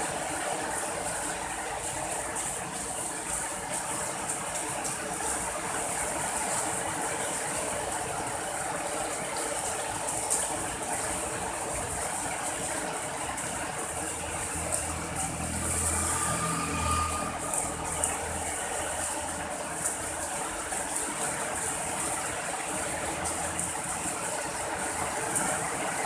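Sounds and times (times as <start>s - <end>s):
sharp drip-like ticks: 0.0s - 26.0s
steady rain hissing: 0.0s - 26.0s
vehicle engine hum: 13.1s - 26.0s.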